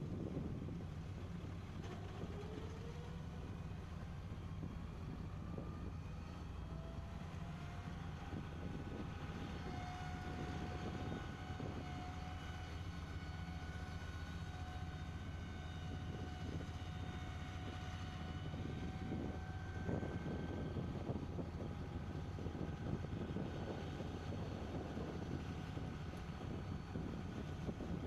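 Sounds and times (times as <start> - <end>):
low machinery rumble: 0.0 - 28.0.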